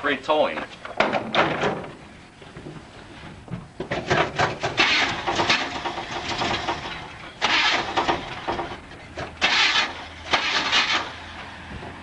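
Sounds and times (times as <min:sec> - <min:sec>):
starter motor cranking engine: 0:04.1 - 0:11.3.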